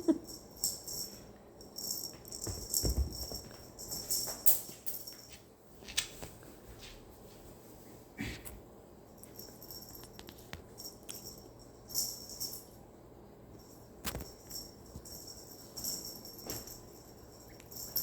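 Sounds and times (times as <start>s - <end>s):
bell ball jingling: 0.1s - 5.4s, 9.2s - 12.7s, 13.6s - 18.0s.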